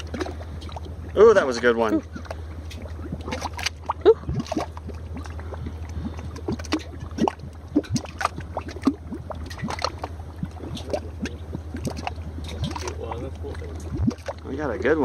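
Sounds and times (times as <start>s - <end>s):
mud bubbling and popping: 0.0s - 15.0s.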